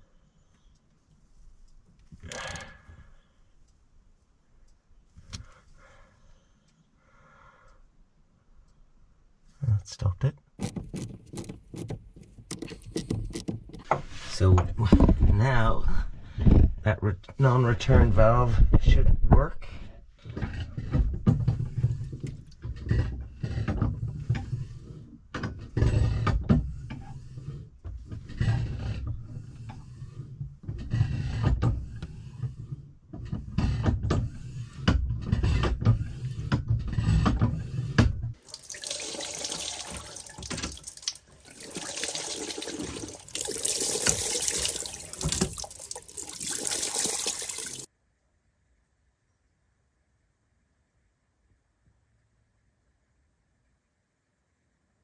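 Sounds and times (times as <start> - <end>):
water rushing: 38.4 - 47.9
hand water pump knocking: 38.5 - 47.8.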